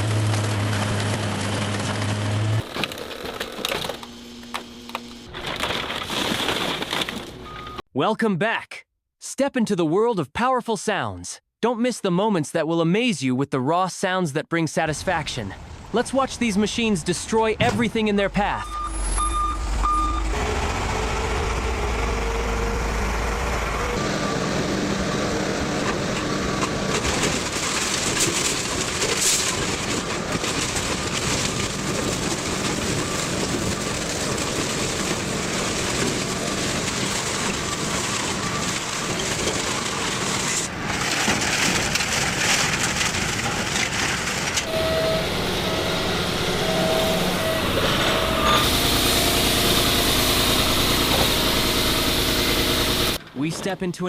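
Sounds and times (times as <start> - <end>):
heavy machinery grinding: 0.0 - 7.5, 19.2 - 53.5
beeping: 17.6 - 20.4, 44.6 - 53.2
low hum: 44.6 - 53.2.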